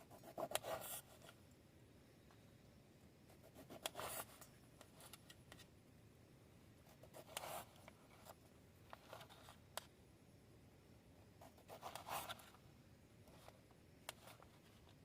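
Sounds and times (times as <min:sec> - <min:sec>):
faint rustles and scrapes: 0:03.4 - 0:05.8, 0:06.8 - 0:09.7, 0:11.4 - 0:12.6, 0:13.2 - 0:15.0.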